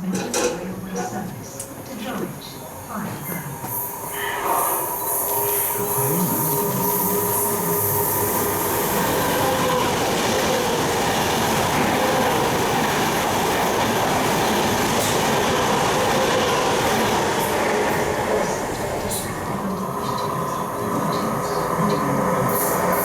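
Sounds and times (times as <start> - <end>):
train wheels rumbling on rail: 5.2 - 23.0
clickety-clack of train wheels: 8.5 - 20.3.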